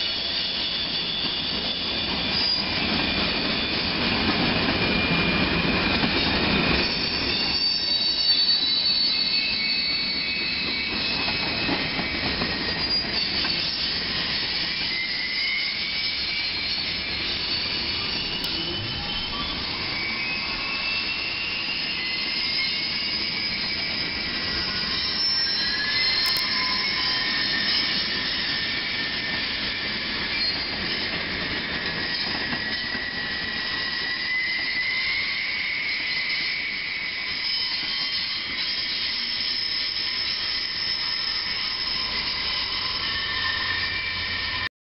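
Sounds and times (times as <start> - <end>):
rumble of rolling train cars: 0.0 - 44.7
train wheels squealing: 0.0 - 44.7.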